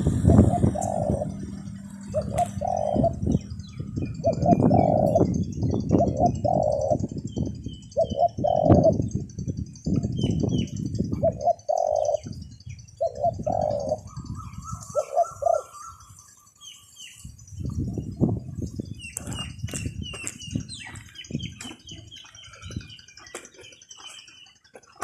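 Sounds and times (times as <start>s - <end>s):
dove cooing: 0.0s - 9.2s, 10.0s - 16.8s
wind buffeting microphone: 0.0s - 24.3s
small birds chirping: 0.0s - 25.0s.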